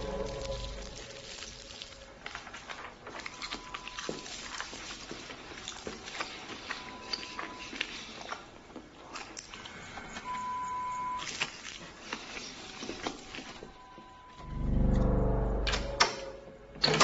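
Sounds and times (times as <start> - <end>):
loud low hum: 0.0 - 1.2, 14.4 - 16.8
electronic beeps: 13.8 - 16.5.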